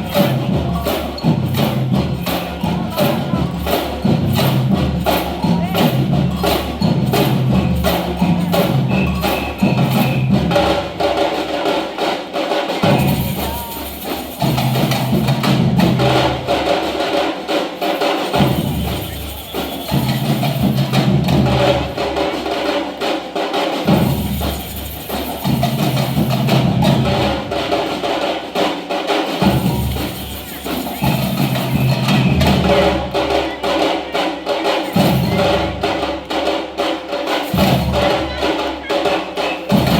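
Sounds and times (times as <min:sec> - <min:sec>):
samba percussion band: 0:00.0 - 0:39.9.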